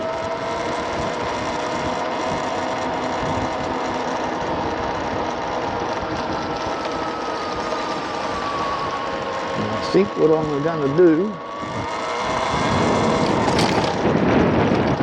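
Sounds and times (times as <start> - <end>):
electric motorcycle motor whine: 0.0 - 15.0
wind rushing across microphone: 11.5 - 15.0.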